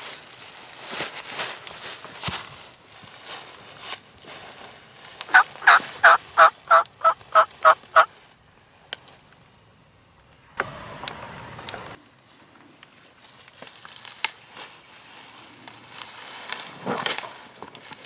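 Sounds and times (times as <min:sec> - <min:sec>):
soft rustling: 0:00.0 - 0:09.5
turkey yelps: 0:05.3 - 0:08.1.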